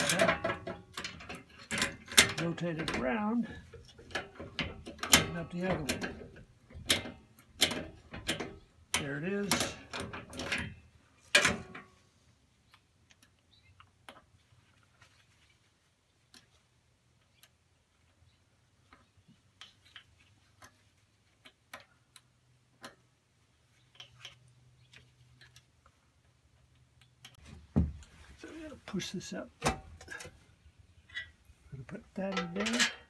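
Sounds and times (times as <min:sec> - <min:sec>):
light metal clicks and taps: 0:00.0 - 0:12.0, 0:18.9 - 0:23.1, 0:23.8 - 0:27.4, 0:32.2 - 0:33.0.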